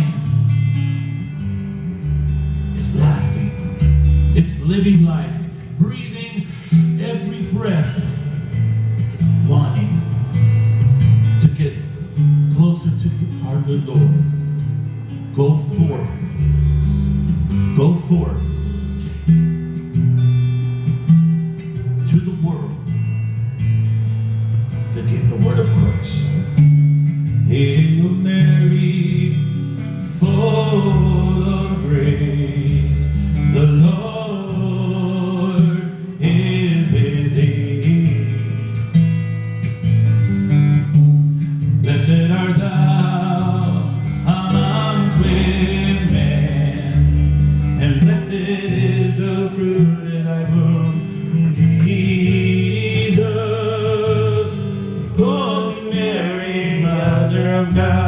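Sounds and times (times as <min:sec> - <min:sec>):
acoustic guitar strumming: 0:00.0 - 0:58.0
person singing: 0:41.9 - 0:58.0.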